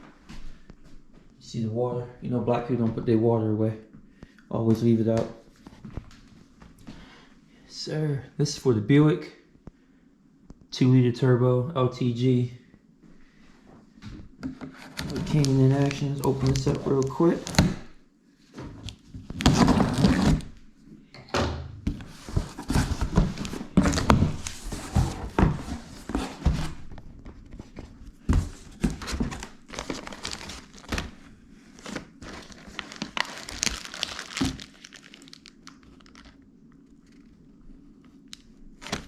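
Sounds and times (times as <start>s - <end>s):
faint low hum: 0.0s - 39.0s
packing paper crinkling: 14.8s - 17.8s, 28.4s - 37.4s, 38.3s - 39.0s.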